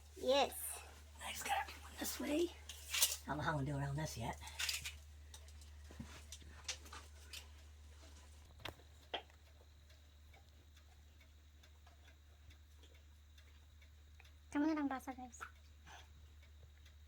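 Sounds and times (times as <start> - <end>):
low steady hum: 0.0 - 17.0
faint clicks and taps: 4.9 - 17.0.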